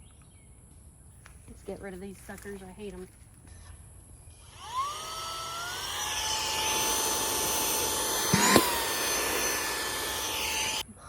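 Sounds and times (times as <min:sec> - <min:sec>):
handheld vacuum whining: 0:04.3 - 0:10.8.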